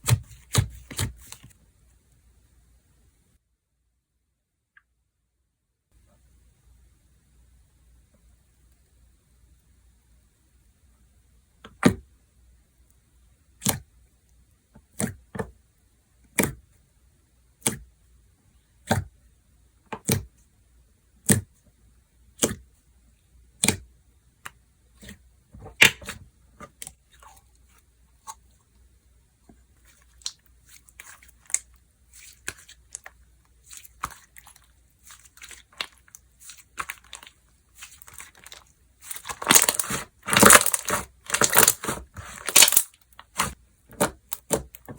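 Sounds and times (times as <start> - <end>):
slime crackling and squishing: 29.7 - 44.9
slime popping: 30.0 - 44.8.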